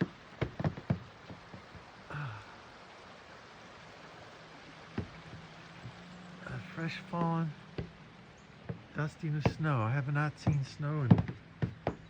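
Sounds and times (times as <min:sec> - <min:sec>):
outdoor background hiss: 0:00.0 - 0:12.0
faint tap: 0:09.4 - 0:09.7.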